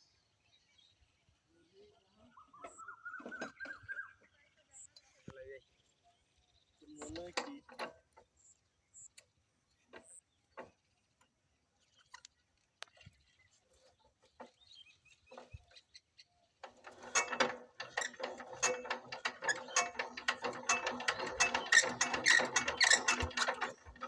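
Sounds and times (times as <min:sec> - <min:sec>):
diesel engine clattering: 0:16.6 - 0:24.0.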